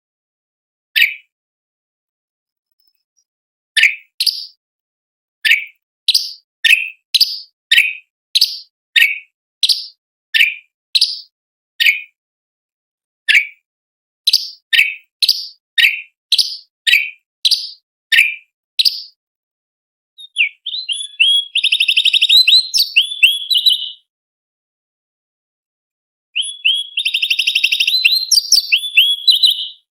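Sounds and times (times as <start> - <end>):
bird whistling song: 1.0 - 1.3, 2.7 - 4.6, 5.4 - 12.2, 13.3 - 13.6, 14.3 - 19.2, 20.2 - 24.1, 26.4 - 29.9
bird chattering trill: 3.8 - 4.6, 20.2 - 24.0, 26.4 - 29.9.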